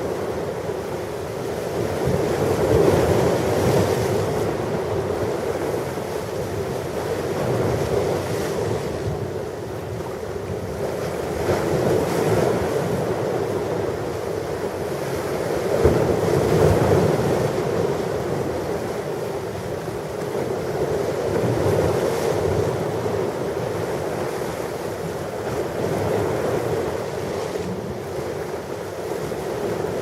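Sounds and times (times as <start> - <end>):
ocean waves washing on shore: 0.0 - 30.0.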